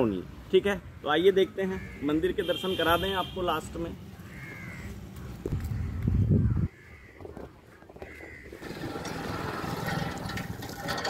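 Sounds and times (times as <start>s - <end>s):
faint bird calls: 4.1s - 8.7s.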